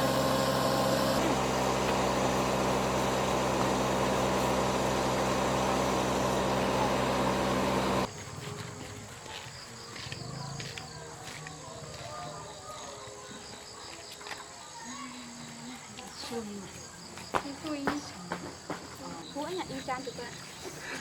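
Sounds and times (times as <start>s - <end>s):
engine idling: 0.0s - 8.1s.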